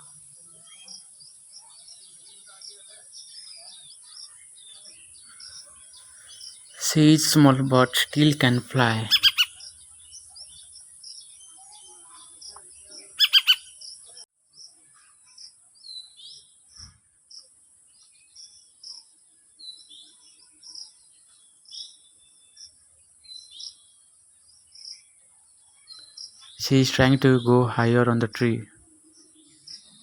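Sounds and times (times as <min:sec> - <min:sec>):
harsh bird call: 0:06.8 - 0:09.6, 0:13.2 - 0:13.8
young bird chirping: 0:08.6 - 0:09.8, 0:13.1 - 0:14.0.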